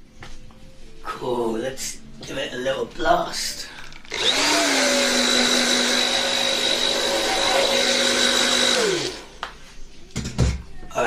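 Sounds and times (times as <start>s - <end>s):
hair dryer blowing: 4.1s - 9.5s.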